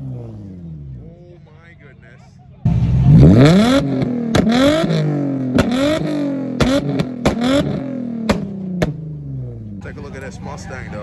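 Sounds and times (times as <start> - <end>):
exhaust pops and bangs: 2.7 - 9.2
car engine revving hard: 2.7 - 9.5.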